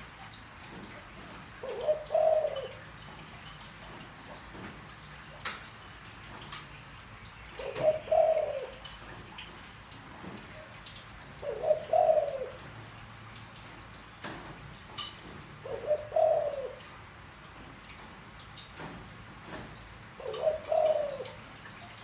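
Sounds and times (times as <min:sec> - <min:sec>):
dove cooing: 0:01.2 - 0:03.3, 0:07.5 - 0:09.2, 0:10.2 - 0:13.0, 0:15.3 - 0:17.0, 0:20.1 - 0:22.0.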